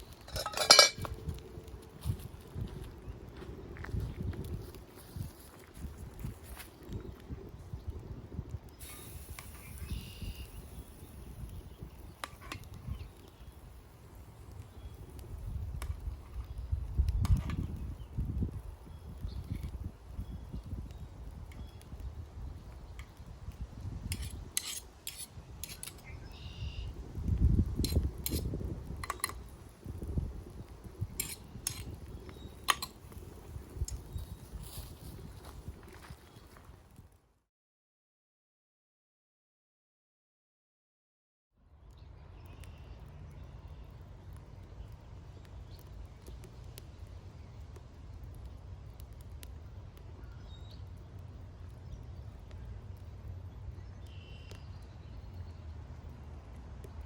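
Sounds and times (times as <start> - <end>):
metal utensil clinking on pot: 0.2 - 1.1
bird chirps: 9.5 - 13.6, 26.0 - 27.0.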